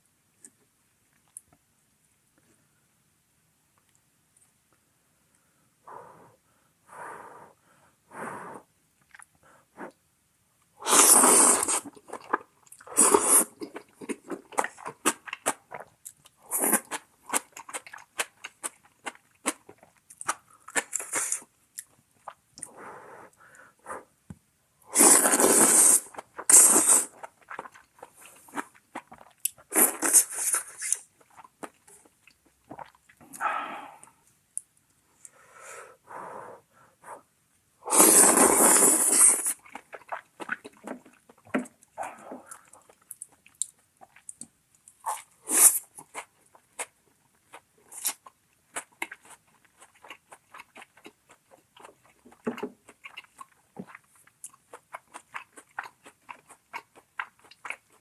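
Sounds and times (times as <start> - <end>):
loud slurps: 10.8 - 12.0, 12.9 - 13.5, 24.9 - 27.2, 37.9 - 40.6, 45.5 - 45.8
wet chewing: 11.6 - 22.7, 26.1 - 33.4, 38.6 - 58.0.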